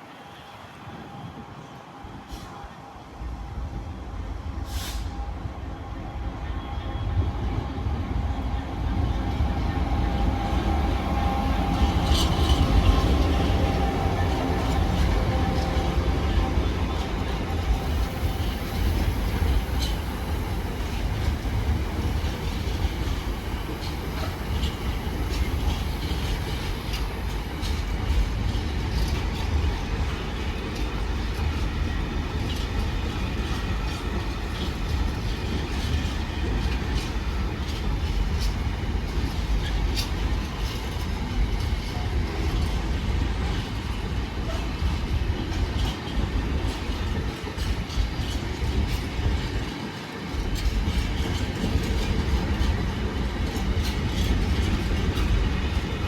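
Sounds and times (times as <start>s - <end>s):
train rumbling: 0.0s - 56.0s
wheels clicking over rail joints: 21.1s - 56.0s.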